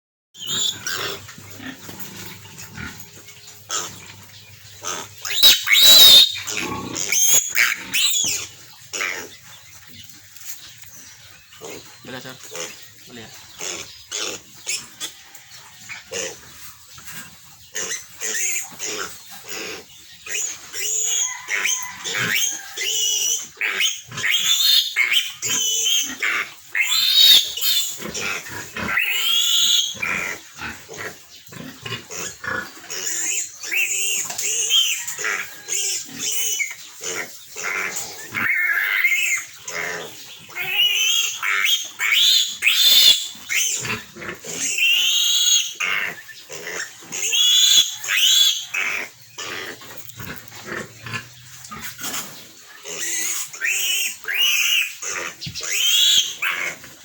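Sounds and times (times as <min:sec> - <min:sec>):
piglet squealing: 0:00.4 - 0:01.3, 0:04.9 - 0:09.3, 0:20.3 - 0:30.4, 0:32.2 - 0:36.8, 0:37.6 - 0:39.8, 0:40.5 - 0:49.7, 0:52.9 - 0:56.8.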